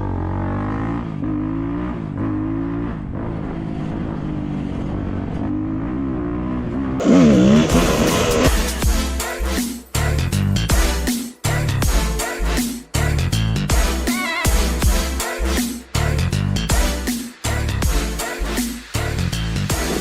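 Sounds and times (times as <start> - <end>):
motorcycle engine revving: 0.0 - 8.9, 19.7 - 20.0
music: 7.0 - 20.0.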